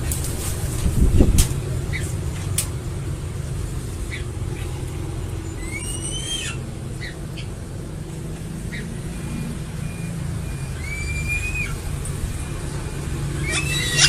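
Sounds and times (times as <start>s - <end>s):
eagle chirping and whistling: 5.5s - 7.5s, 9.8s - 14.0s.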